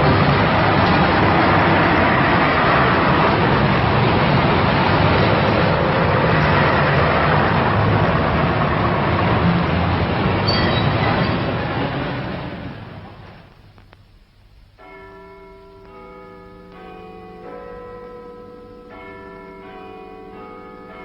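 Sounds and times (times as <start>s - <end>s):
train rumbling: 0.0s - 13.8s.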